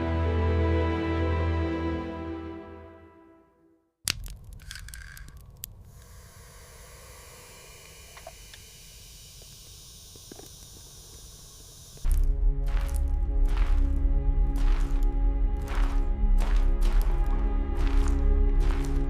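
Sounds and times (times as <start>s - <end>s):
crackling and crunching: 4.0s - 5.9s, 12.0s - 19.0s
sharp crack: 4.0s - 5.9s
steady hiss: 5.9s - 12.1s
low rumble: 12.1s - 19.0s.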